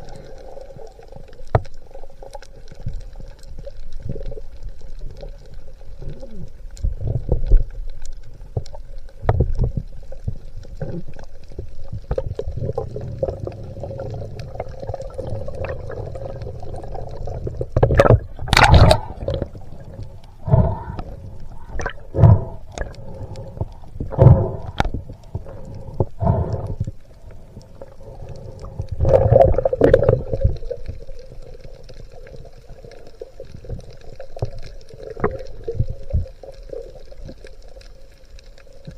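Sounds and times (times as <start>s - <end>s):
water sloshing and gurgling: 0.0s - 38.9s
loud bubbling surges: 18.0s - 21.0s.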